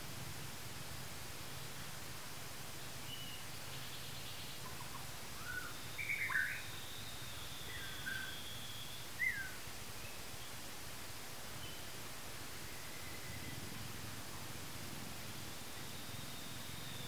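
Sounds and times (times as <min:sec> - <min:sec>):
background hiss: 0:00.0 - 0:17.0
birds chirping: 0:02.8 - 0:10.6
thin high whistle: 0:15.7 - 0:17.0.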